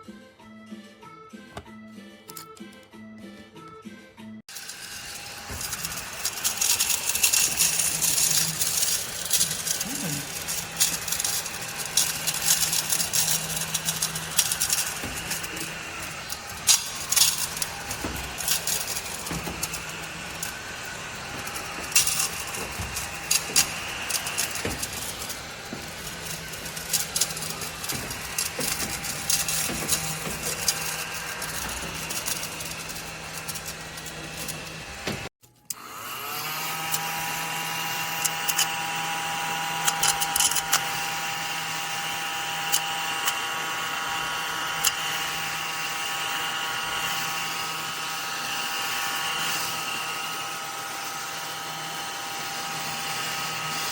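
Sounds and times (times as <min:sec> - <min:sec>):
clicks and rattles: 0:01.5 - 0:03.8, 0:04.5 - 0:35.8
small vacuum cleaner motor humming: 0:04.5 - 0:53.9.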